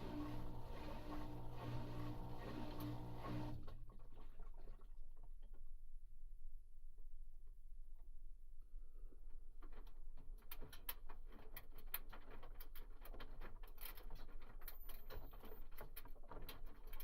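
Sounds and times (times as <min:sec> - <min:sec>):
washing machine drum coasting: 0:00.0 - 0:03.6.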